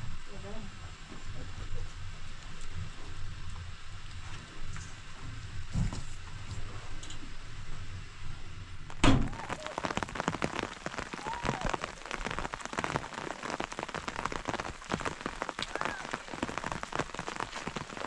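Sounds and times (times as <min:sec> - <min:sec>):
heavy rain pattering: 0:08.8 - 0:18.0
loud thump: 0:09.0 - 0:09.4.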